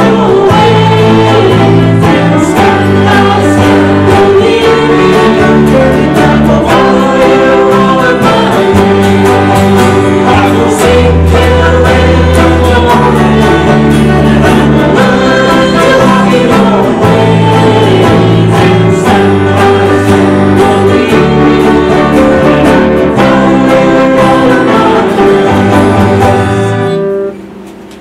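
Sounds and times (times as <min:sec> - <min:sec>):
voices singing held notes: 0:00.0 - 0:27.4
band playing worship music: 0:00.0 - 0:28.0.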